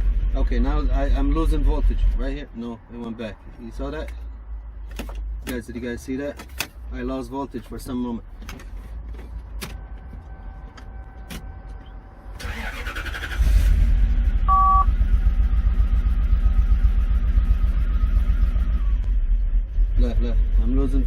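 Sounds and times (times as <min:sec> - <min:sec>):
car engine running: 0:07.5 - 0:21.0
two-tone beep: 0:14.5 - 0:14.9.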